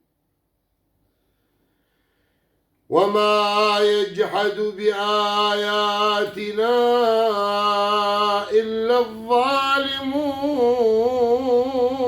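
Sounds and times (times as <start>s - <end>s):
man chanting melodic recitation: 2.9s - 12.0s.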